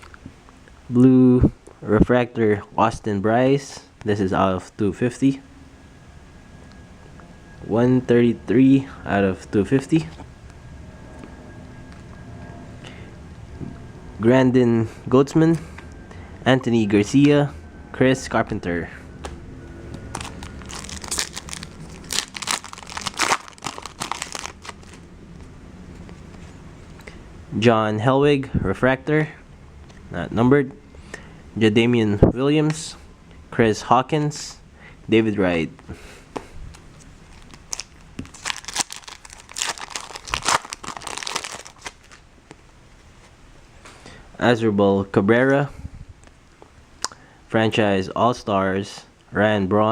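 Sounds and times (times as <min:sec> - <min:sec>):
foil wrapper crinkling: 0:20.1 - 0:25.0, 0:36.7 - 0:42.3.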